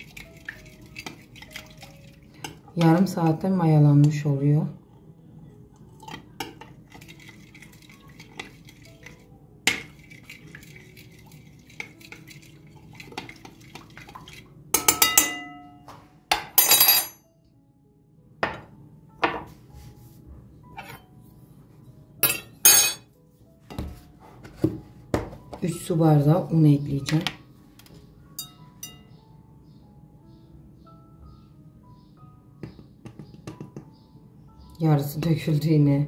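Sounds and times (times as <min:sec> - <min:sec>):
dishes and utensils clinking: 0:14.8 - 0:17.2, 0:20.8 - 0:21.1, 0:22.2 - 0:23.1, 0:28.4 - 0:29.1.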